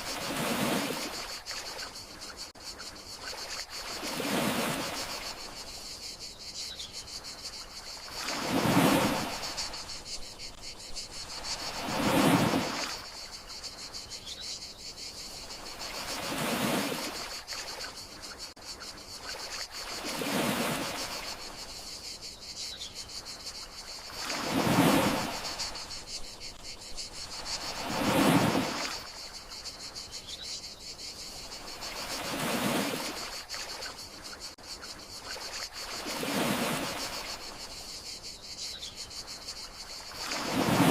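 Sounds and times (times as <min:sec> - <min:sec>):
sea waves washing ashore: 0:00.0 - 0:02.4, 0:03.2 - 0:05.7, 0:07.4 - 0:13.8, 0:15.4 - 0:18.0, 0:19.2 - 0:21.8, 0:23.8 - 0:29.7, 0:31.5 - 0:34.2, 0:35.2 - 0:37.8, 0:39.7 - 0:40.9
crickets chirring: 0:00.0 - 0:40.9.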